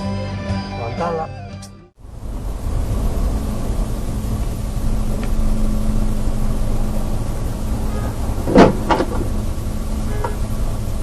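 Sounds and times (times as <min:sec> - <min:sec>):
car road and engine rumble: 0:01.9 - 0:11.0
sudden loud bang: 0:08.0 - 0:09.4.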